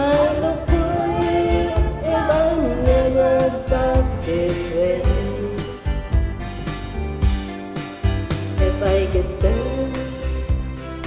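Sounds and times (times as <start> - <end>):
instrumental backing track: 0.0 - 11.0.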